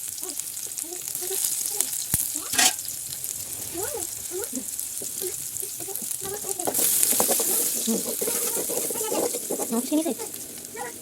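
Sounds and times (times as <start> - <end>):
food sizzling in a pan: 0.0 - 11.0
scraping clatter: 2.4 - 3.8, 6.3 - 10.9.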